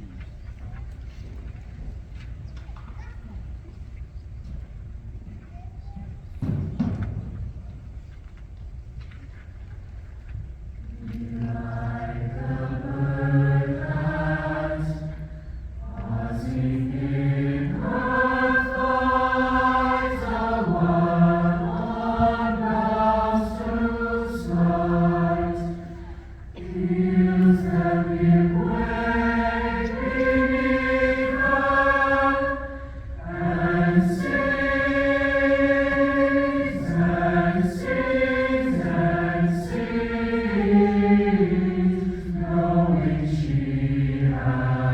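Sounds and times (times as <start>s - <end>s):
choir singing sustained chords: 10.9s - 44.9s.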